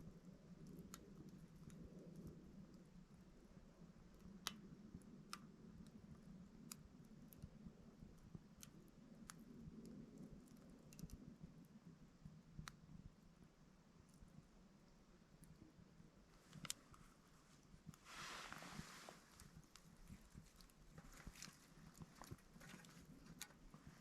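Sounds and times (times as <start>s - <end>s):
low steady hum: 0.0s - 24.0s
wood fire crackling and popping: 16.4s - 24.0s.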